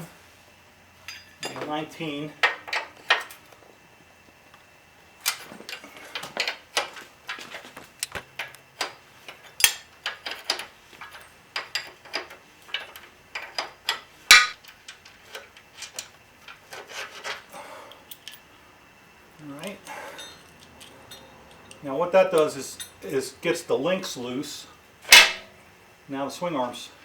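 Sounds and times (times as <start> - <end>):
metallic wrench clicks and clanks: 8.0 - 16.6.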